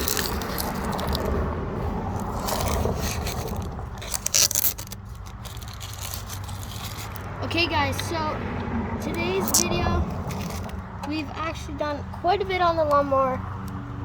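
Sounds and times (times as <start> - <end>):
masking tape peeling and crumpling: 0.0 - 7.3, 9.3 - 10.8.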